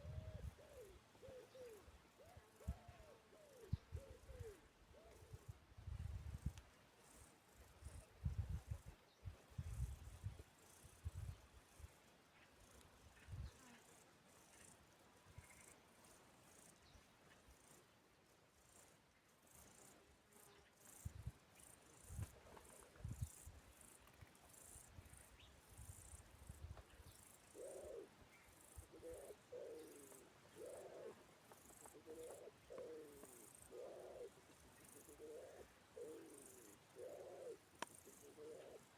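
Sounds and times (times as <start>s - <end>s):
insects chirping: 18.6s - 38.9s
animal cooing calls: 29.0s - 31.2s, 31.8s - 37.6s.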